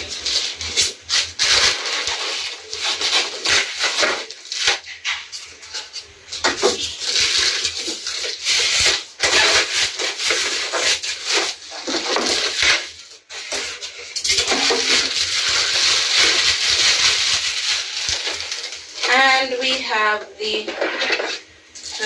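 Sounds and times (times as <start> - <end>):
packaging rustling and crinkling: 0.0 - 22.0.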